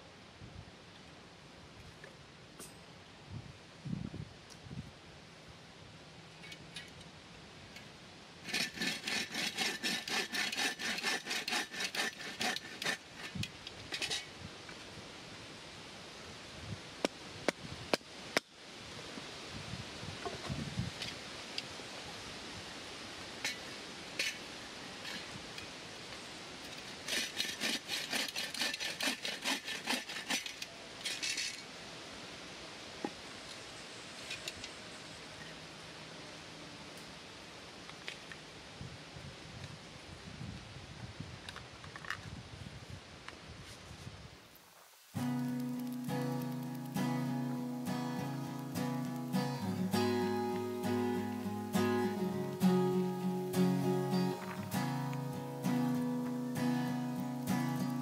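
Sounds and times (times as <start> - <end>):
hand saw cutting wood: 8.4 - 14.3, 26.8 - 31.3
short scrape: 8.4 - 14.3.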